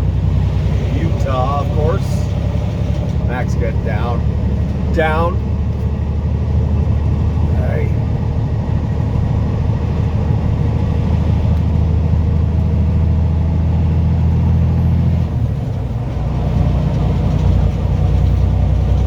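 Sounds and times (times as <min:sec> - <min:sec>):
truck diesel engine droning: 0:00.0 - 0:19.0.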